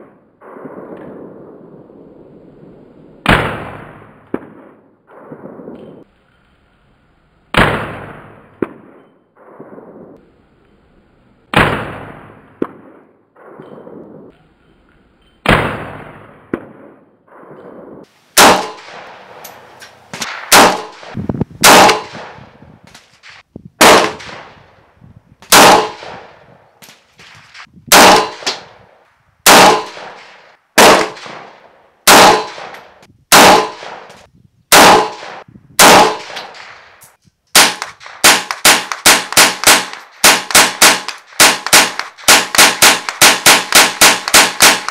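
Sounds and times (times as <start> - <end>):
rifle gunshots: 3.2 - 5.7, 7.5 - 10.1, 11.5 - 14.0, 15.4 - 17.6, 18.4 - 24.6, 25.4 - 44.9.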